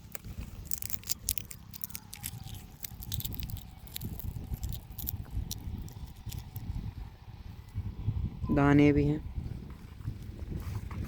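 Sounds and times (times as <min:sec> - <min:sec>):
crop plants rustling: 0:00.0 - 0:06.7
wind on microphone: 0:02.4 - 0:11.0.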